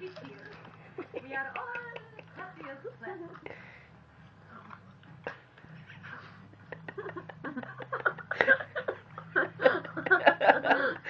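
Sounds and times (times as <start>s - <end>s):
person laughing: 5.8s - 11.0s.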